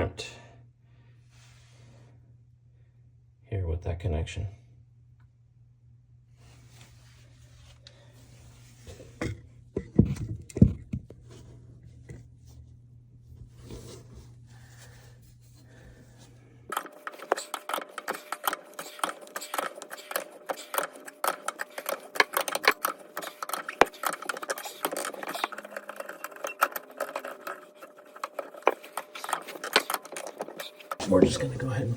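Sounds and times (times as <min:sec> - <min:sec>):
tools clicking and knocking: 0:16.7 - 0:31.0.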